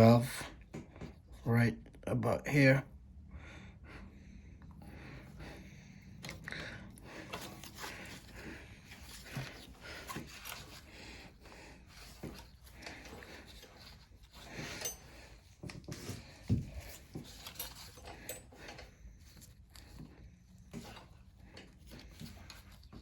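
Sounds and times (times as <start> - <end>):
small clicks and rustles: 7.2 - 23.0.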